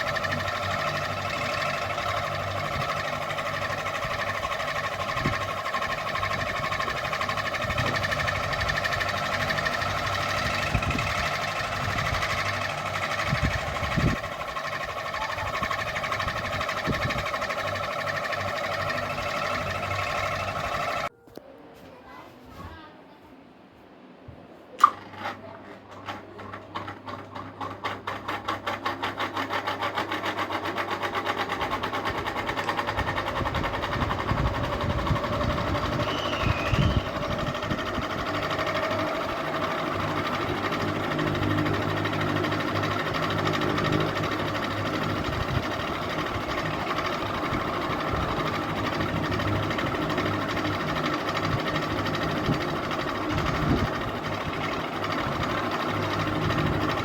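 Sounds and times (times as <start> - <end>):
ceiling fan whirring: 0.0 - 57.0.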